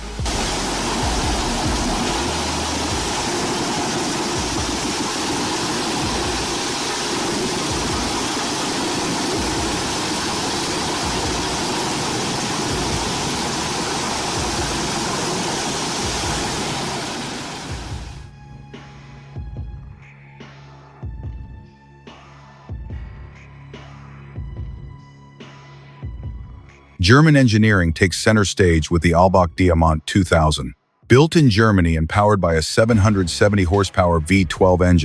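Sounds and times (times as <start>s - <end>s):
heavy machinery roar: 0.0s - 18.2s.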